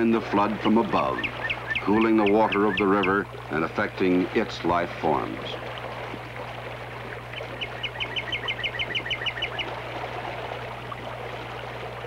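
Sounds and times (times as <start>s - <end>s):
stream water flowing: 0.0s - 12.0s
bird calling high notes: 0.8s - 3.3s, 7.3s - 9.8s.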